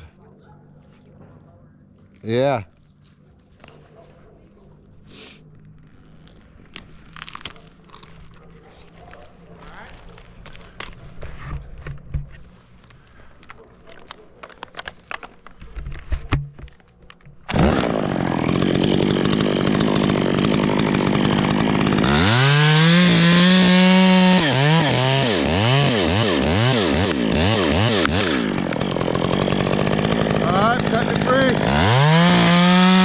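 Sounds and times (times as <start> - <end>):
chainsaw cutting wood: 17.4 - 33.0.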